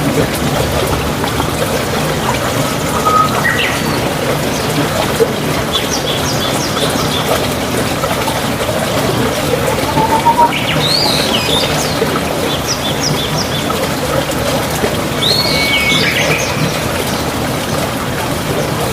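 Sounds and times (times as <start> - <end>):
birds chirping and calling: 2.3 - 4.7, 9.6 - 11.6
bird whistled phrases: 2.9 - 4.0, 9.5 - 11.7.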